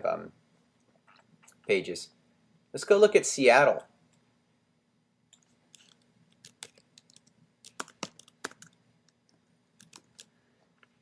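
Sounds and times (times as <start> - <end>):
faint keyboard typing: 5.3 - 11.0.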